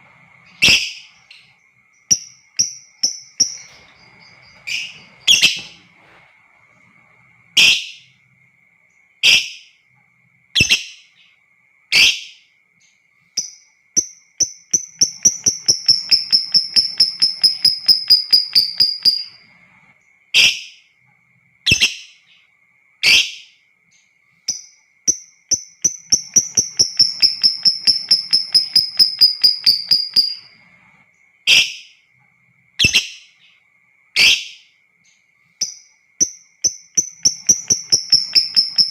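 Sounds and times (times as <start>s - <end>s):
lovebird calls and chattering trill: 0.4s - 5.8s, 13.4s - 19.4s, 24.5s - 30.6s, 35.6s - 38.9s.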